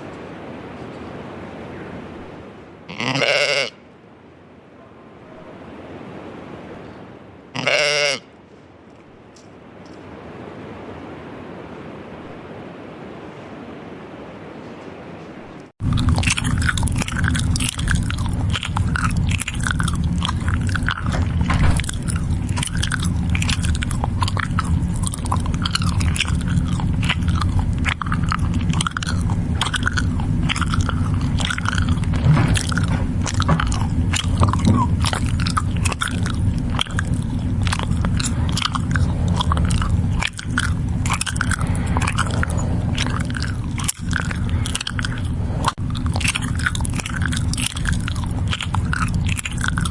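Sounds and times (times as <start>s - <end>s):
goats chewing and crunching feed: 2.9s - 3.7s, 7.6s - 10.0s, 14.6s - 49.9s
low rumble: 15.8s - 49.9s.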